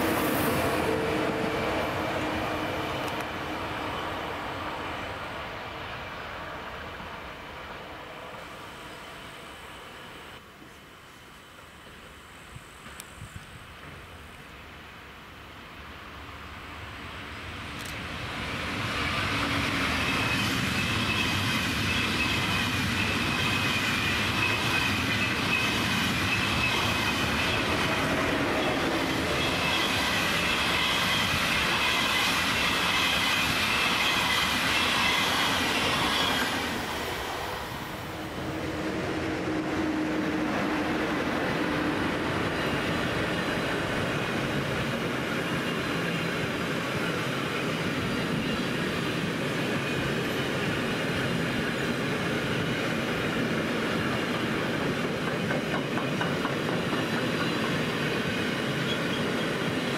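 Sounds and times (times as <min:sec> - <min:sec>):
train wheel and rail noise: 0:00.0 - 0:59.9
train wheel squeal: 0:18.7 - 0:41.0, 0:41.6 - 0:59.9.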